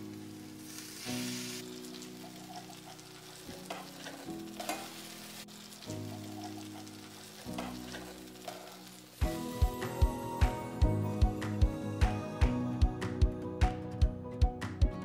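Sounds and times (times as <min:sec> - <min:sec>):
fritters sizzling in hot oil: 0:00.0 - 0:10.3
soft background music: 0:00.0 - 0:15.0.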